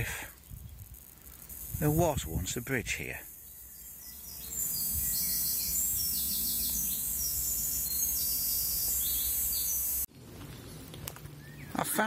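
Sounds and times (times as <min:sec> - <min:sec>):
birds trilling: 0:03.0 - 0:10.1.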